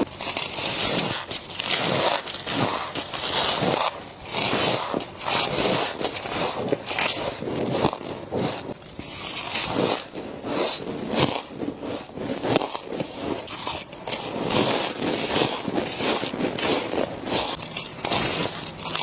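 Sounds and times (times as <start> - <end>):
crunchy bites of frost: 0.0 - 19.0.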